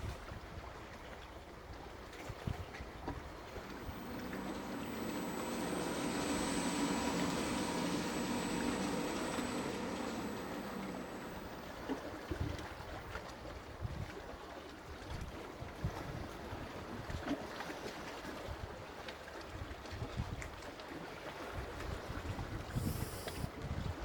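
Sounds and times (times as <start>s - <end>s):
motorboat engine passing: 3.1s - 13.5s.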